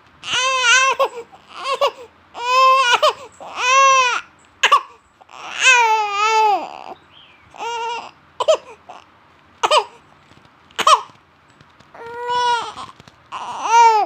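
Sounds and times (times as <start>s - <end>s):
baby crying: 0.2s - 7.0s, 7.6s - 10.0s, 12.0s - 14.0s.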